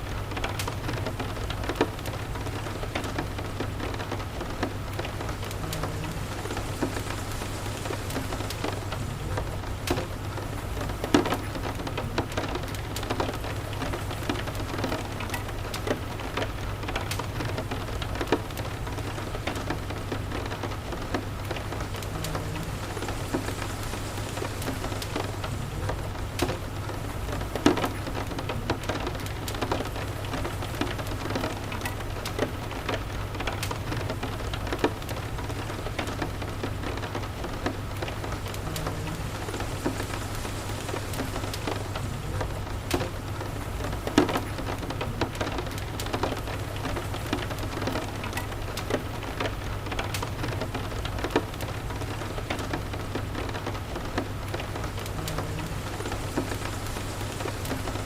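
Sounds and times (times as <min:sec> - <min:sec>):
steady rain: 0:00.0 - 0:58.0
fireplace crackling: 0:00.1 - 0:58.0
low steady rumble: 0:20.2 - 0:28.8.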